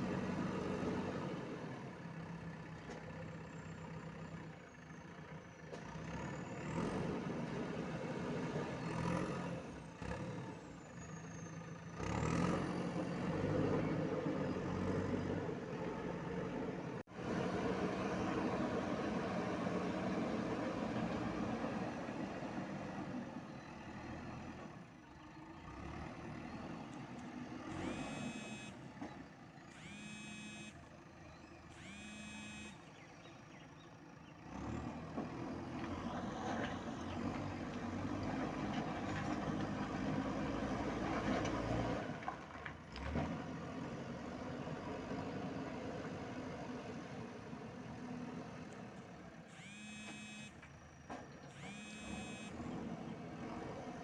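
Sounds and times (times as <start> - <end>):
diesel engine running: 0.0 - 43.1, 46.9 - 54.0
reversing alarm beeping: 27.7 - 28.8, 29.7 - 30.8, 31.7 - 32.9, 49.5 - 50.6, 51.5 - 52.7.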